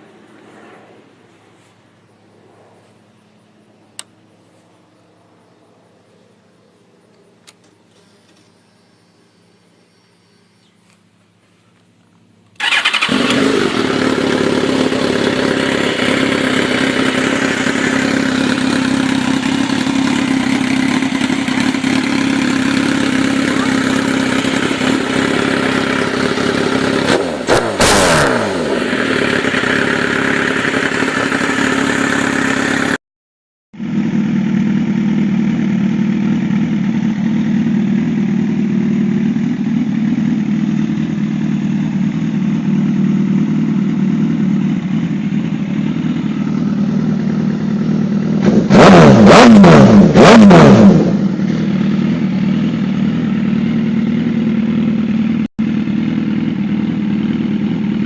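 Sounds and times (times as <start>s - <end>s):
motorcycle engine revving: 12.5s - 33.0s, 33.8s - 58.0s.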